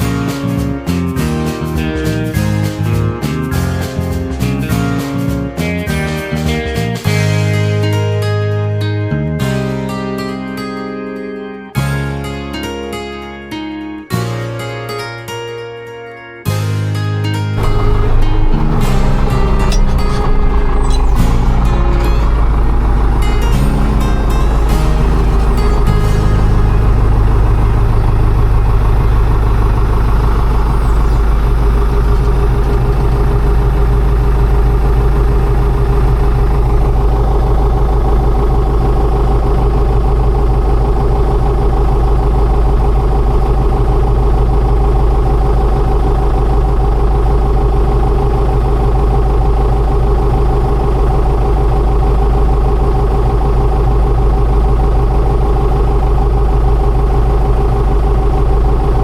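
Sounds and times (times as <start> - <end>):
combine harvester engine drone: 17.6 - 59.0.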